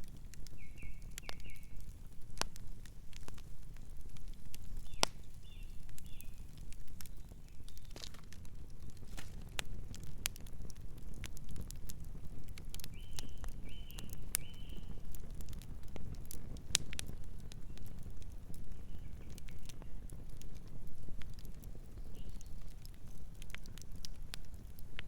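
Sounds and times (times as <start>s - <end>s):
campfire crackling and popping: 0.0s - 25.0s
night bird chirping: 12.9s - 14.9s.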